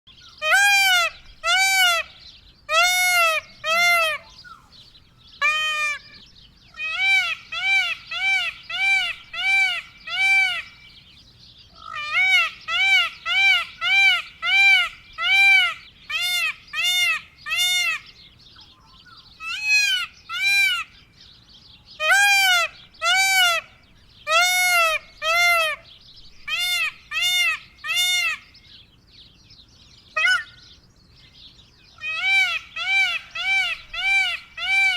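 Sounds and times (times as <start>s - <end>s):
peacock calling: 0.1s - 29.0s, 29.7s - 34.9s.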